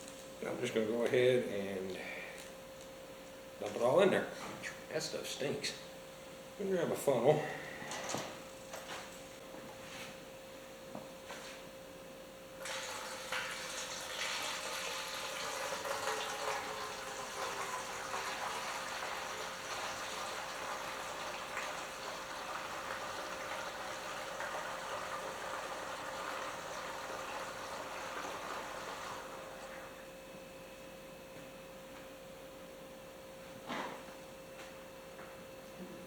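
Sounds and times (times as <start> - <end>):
liquid pouring through a funnel: 12.6 - 30.0.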